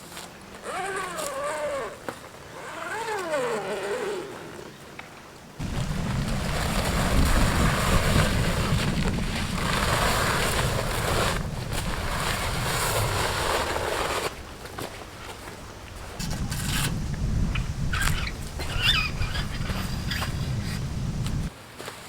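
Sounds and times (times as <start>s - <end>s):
wind gusting against microphone: 5.6s - 21.5s.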